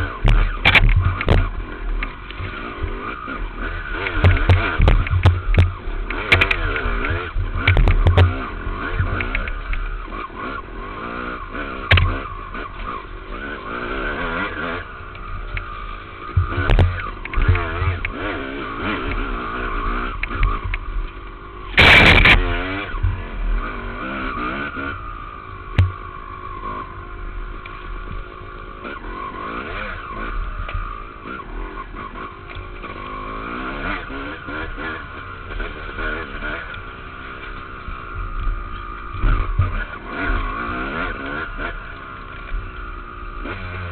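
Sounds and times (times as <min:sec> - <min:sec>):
dirt bike engine revving: 0:00.0 - 0:43.9
thumps: 0:00.2 - 0:02.6, 0:04.0 - 0:10.0, 0:16.3 - 0:18.2, 0:20.2 - 0:23.2
loud rush of noise: 0:21.7 - 0:23.4.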